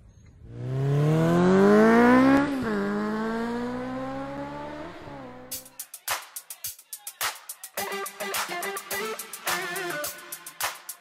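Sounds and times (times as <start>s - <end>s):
car engine revving: 0.3s - 5.7s.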